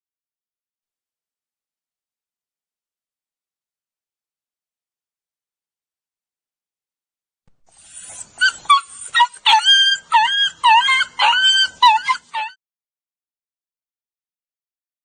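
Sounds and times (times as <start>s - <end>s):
animal whining cries: 7.8s - 12.6s.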